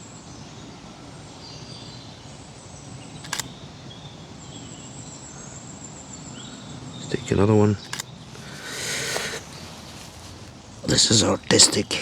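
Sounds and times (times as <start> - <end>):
faint bird chirps: 0.0 - 12.0
woodland ambience: 0.0 - 12.0
camera shutter double click: 3.2 - 3.6, 7.8 - 8.2.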